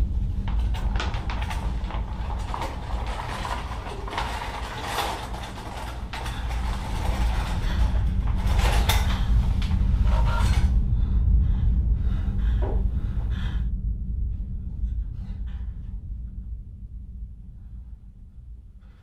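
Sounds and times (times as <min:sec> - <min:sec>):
rattling and scraping: 0:00.0 - 0:11.4
deep rumbling drone: 0:00.0 - 0:19.0.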